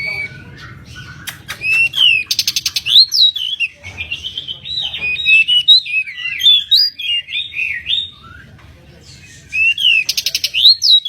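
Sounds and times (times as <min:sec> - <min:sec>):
bird singing whistled notes: 0:09.5 - 0:11.0.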